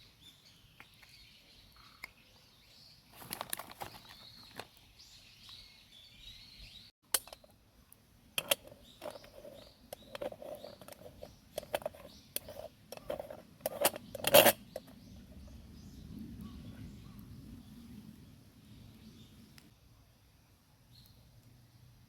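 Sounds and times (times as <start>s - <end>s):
birds chirping: 0.0s - 3.1s, 3.8s - 6.9s, 8.3s - 19.7s.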